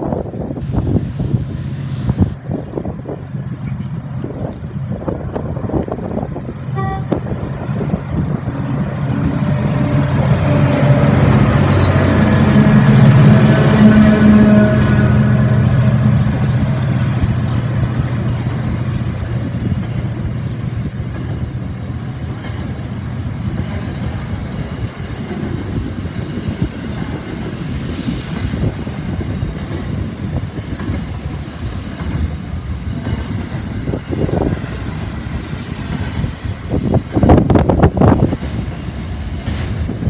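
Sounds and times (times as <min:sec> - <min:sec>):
freight train wagons rumbling: 0:00.0 - 0:40.0
locomotive engine drone: 0:00.0 - 0:40.0
wheels clacking over rail joints: 0:28.2 - 0:40.0.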